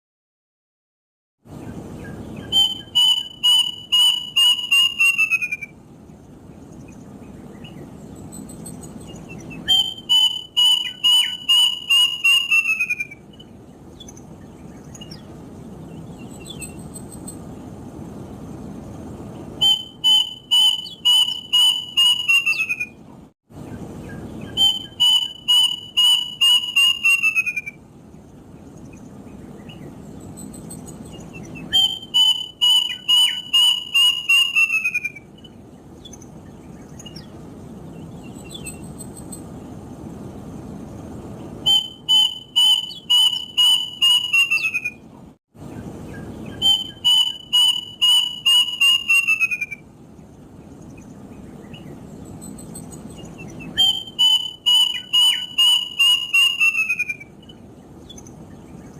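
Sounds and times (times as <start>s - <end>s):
cuckoo whistled song: 1.6s - 5.8s, 6.8s - 15.3s, 15.9s - 17.4s, 19.6s - 27.8s, 29.6s - 37.4s, 38.2s - 39.4s, 41.6s - 45.1s, 45.7s - 49.9s, 51.6s - 58.9s.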